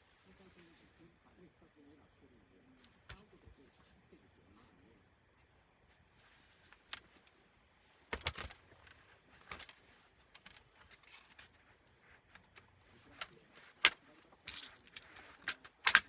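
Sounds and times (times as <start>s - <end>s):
clicks and taps of laptop parts: 8.1s - 8.6s.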